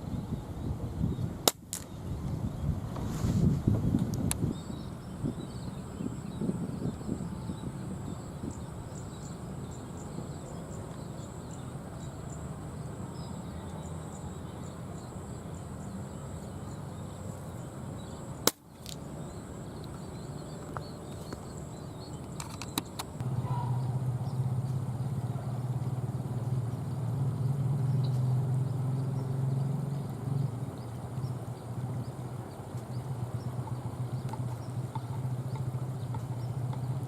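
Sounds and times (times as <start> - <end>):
outdoor background noise: 0.0 - 37.0
sharp crack: 1.4 - 1.9, 18.4 - 19.0.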